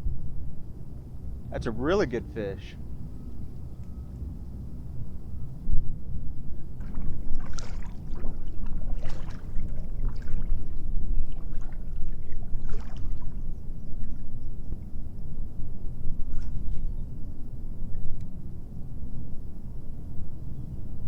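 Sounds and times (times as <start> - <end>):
water splashing and trickling: 6.8 - 13.5.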